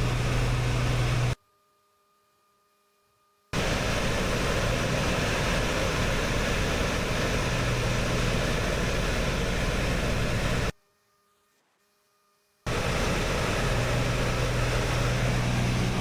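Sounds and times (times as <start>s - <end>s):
propeller plane engine drone: 0.0s - 1.4s, 3.6s - 10.7s, 12.7s - 16.0s.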